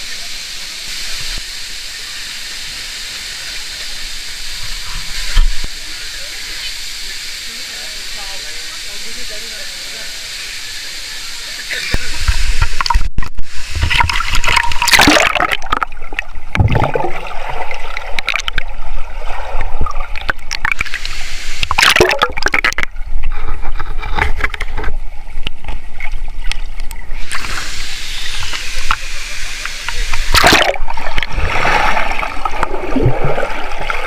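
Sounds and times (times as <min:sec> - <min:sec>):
water gurgling: 0:07.5 - 0:34.0
water splashing and sloshing: 0:12.0 - 0:27.8, 0:29.9 - 0:34.0.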